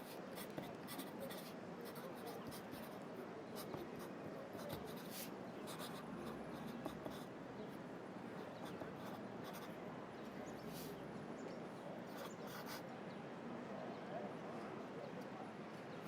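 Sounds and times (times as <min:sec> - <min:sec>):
pencil scratching on paper: 0:00.0 - 0:03.0, 0:03.6 - 0:07.3, 0:08.6 - 0:09.7, 0:12.2 - 0:12.8.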